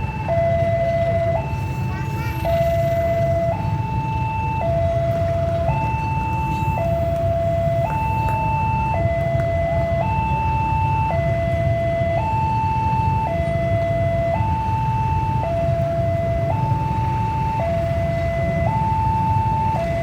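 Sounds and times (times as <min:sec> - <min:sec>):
level crossing two-tone alarm: 0:00.0 - 0:20.0
low rumble of engines: 0:00.0 - 0:20.0.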